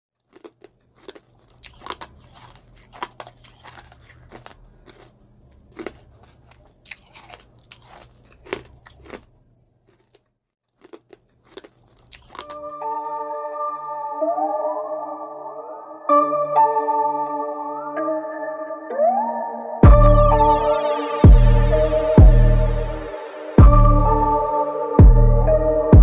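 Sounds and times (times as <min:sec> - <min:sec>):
crunchy food being chewed: 0:00.2 - 0:12.6.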